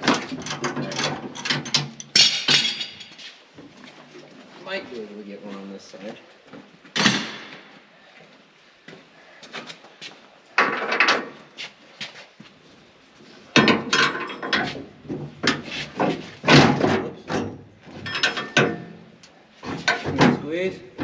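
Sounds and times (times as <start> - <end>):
metal clanks and scrapes of tools: 0.0 - 3.4, 13.5 - 19.0, 19.6 - 20.4.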